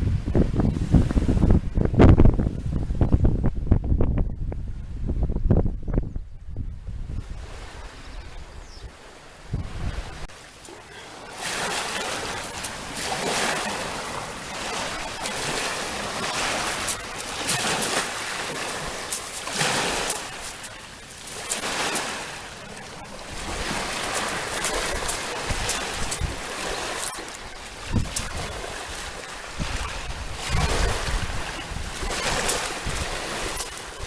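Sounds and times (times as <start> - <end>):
sea waves breaking on shore: 6.9 - 34.0.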